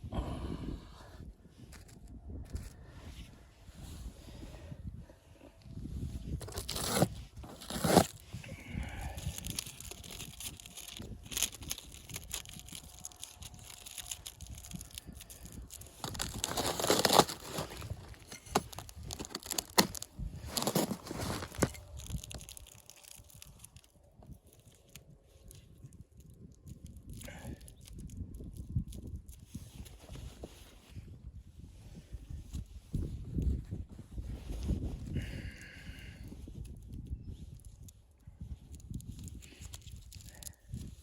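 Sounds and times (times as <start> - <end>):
rustling and crunching: 5.6 - 31.0, 36.6 - 41.0.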